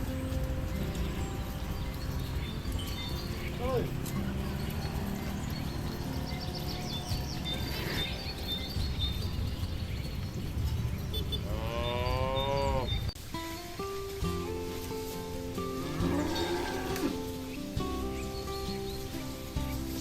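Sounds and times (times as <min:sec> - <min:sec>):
low rumbling background: 0:00.0 - 0:13.2
cow mooing: 0:11.4 - 0:13.0, 0:15.7 - 0:17.4.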